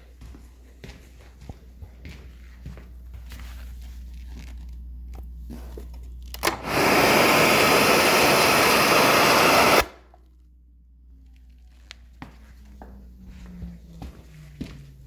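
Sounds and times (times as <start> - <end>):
switch click: 6.4 - 9.9
vacuum suction rush: 6.4 - 10.0.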